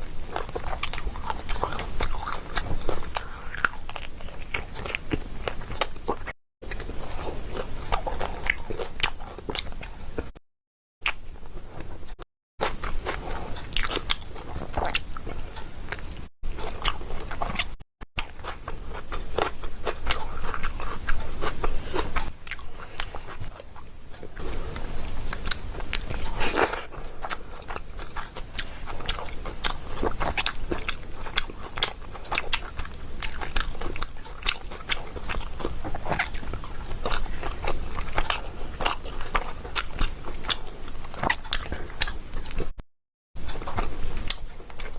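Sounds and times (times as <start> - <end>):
chewing and crunching: 0.0 - 10.4, 11.0 - 42.8, 43.4 - 44.9.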